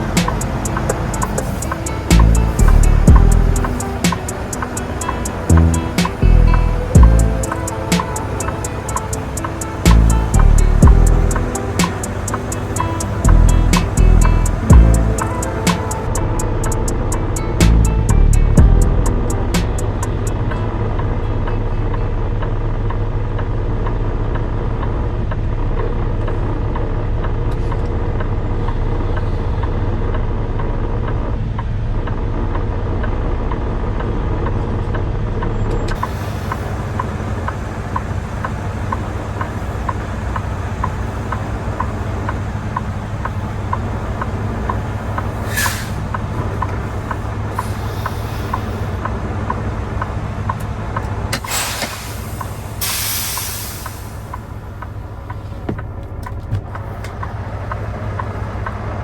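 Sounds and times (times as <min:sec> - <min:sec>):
air brake hiss: 0:00.0 - 0:16.9, 0:36.0 - 0:38.6, 0:45.2 - 0:46.2, 0:47.0 - 0:49.0, 0:51.4 - 0:54.5
regular ticking: 0:00.0 - 0:20.7
truck engine running: 0:00.0 - 0:59.0.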